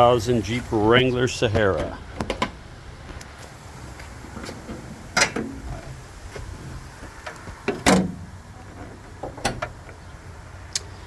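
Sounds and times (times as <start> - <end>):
sharp clunks: 7.7 - 8.3.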